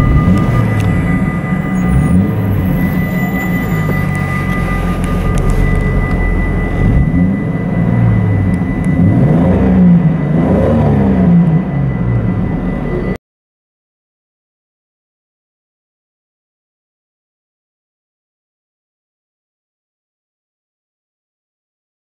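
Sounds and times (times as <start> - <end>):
car engine from inside cabin: 0.0 - 13.2.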